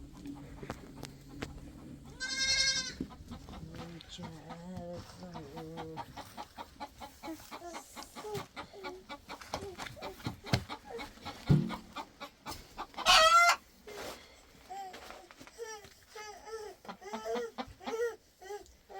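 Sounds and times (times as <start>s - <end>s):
chickens clucking: 0.0s - 13.8s, 16.5s - 18.3s
thump: 11.5s - 11.8s
chicken squawking loudly: 12.9s - 13.6s.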